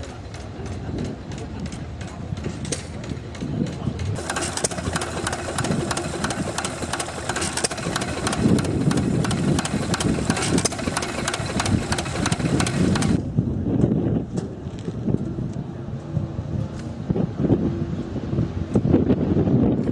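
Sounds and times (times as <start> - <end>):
engine idling with sharp knocks: 0.0 - 13.2.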